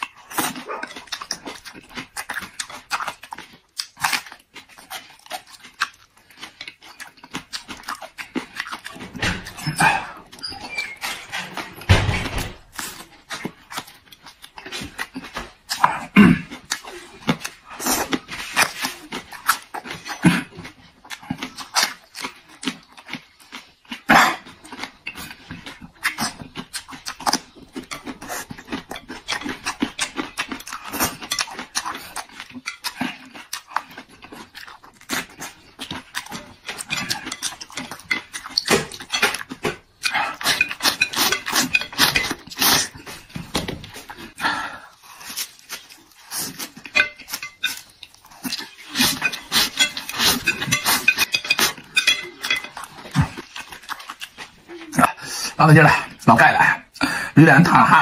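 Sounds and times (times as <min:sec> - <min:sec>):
chewing crunchy food: 0:00.0 - 0:58.0.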